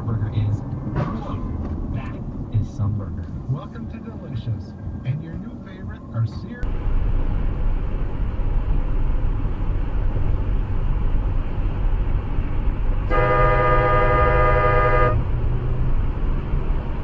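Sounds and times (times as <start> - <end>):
car engine and road rumble: 0.0 - 17.0
car horn blast: 13.1 - 15.3.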